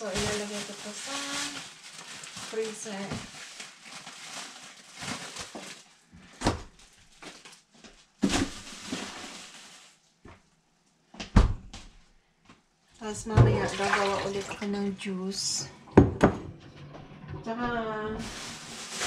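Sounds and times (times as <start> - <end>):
plastic bags rustling: 0.0 - 10.2, 18.2 - 19.0.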